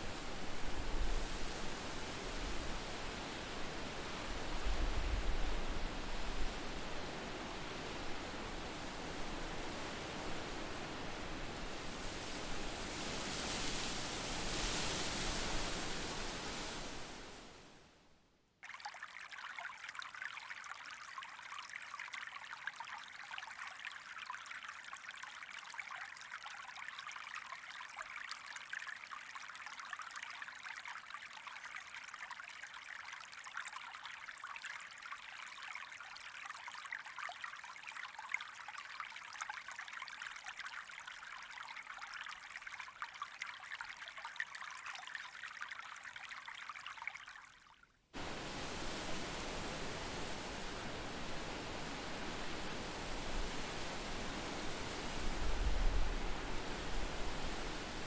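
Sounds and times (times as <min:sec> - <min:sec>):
stream trickling and babbling: 0:00.0 - 0:17.9, 0:18.5 - 0:58.0
broad rushing noise: 0:48.2 - 0:58.0.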